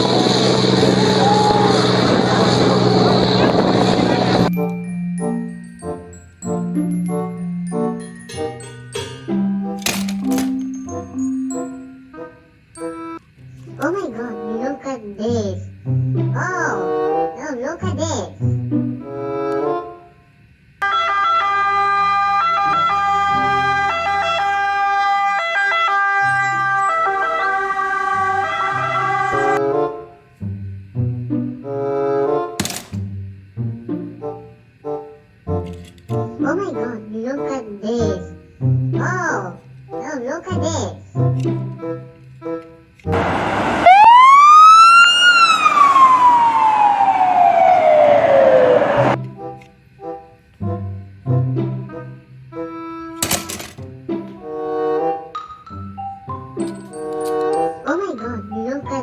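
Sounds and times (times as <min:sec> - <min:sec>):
electronic siren tones: 0:43.2 - 0:49.2.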